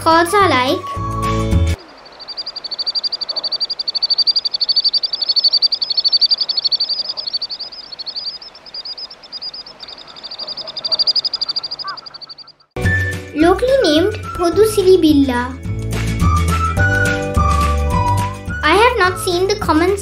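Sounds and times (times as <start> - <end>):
sandpiper trilling call: 0.6 - 12.7.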